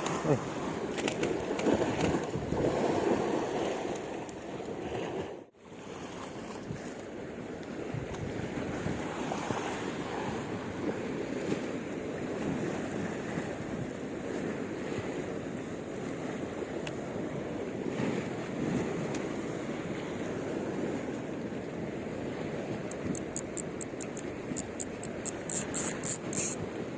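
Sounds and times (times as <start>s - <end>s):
wind buffeting microphone: 0.0s - 5.2s, 7.8s - 14.4s.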